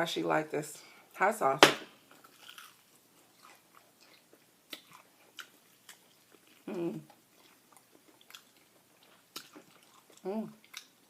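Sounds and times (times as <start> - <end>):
chewing fried chicken: 2.1 - 11.0
person humming: 6.7 - 7.1, 10.2 - 10.6.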